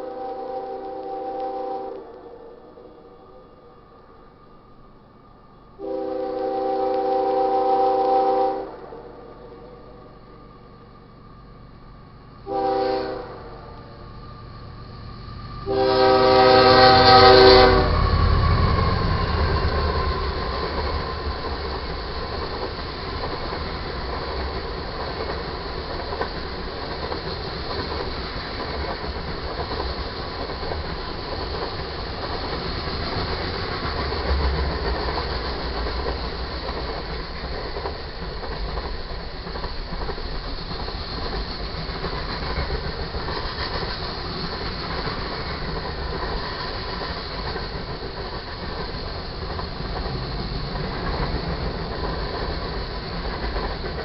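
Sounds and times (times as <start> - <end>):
locomotive air horn: 0.0 - 2.4, 5.8 - 9.6, 12.4 - 13.9, 15.6 - 18.0
freight cars rumbling on rails: 8.5 - 54.0.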